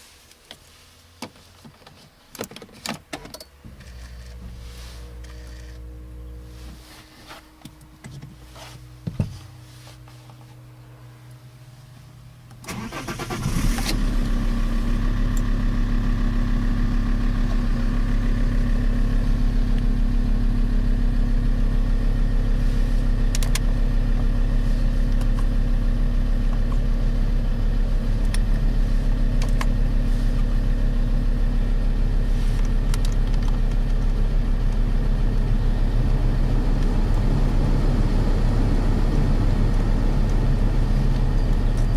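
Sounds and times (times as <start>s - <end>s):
diesel engine idling: 10.6s - 33.0s.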